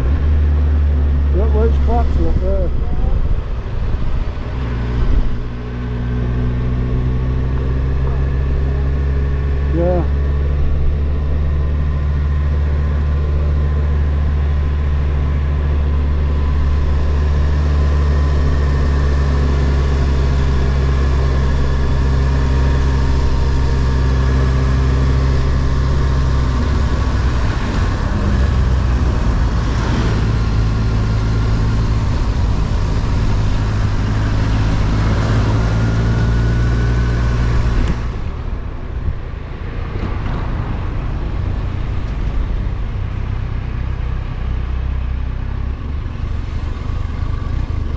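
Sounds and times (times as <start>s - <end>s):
road and wind noise: 0.0s - 47.9s.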